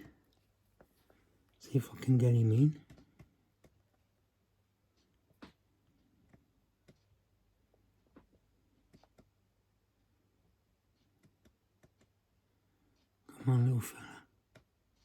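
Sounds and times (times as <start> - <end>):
faint clicks and taps: 2.5 - 13.3, 14.3 - 15.0.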